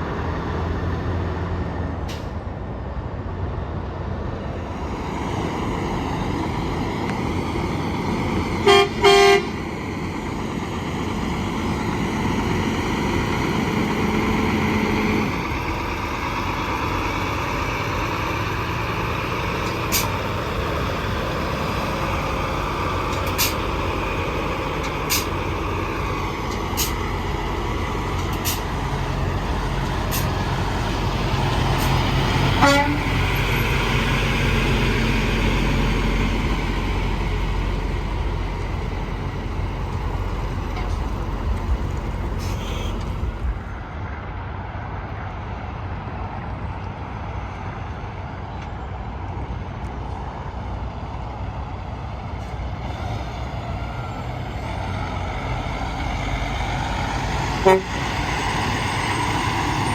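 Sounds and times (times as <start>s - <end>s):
highway traffic with trucks: 0.0s - 59.9s
truck engine hum: 0.0s - 59.9s
horn toots: 8.6s - 9.6s, 32.6s - 33.2s, 42.4s - 43.1s, 57.6s - 58.0s
horn-like blast: 8.6s - 9.6s, 32.6s - 33.1s, 57.6s - 58.0s.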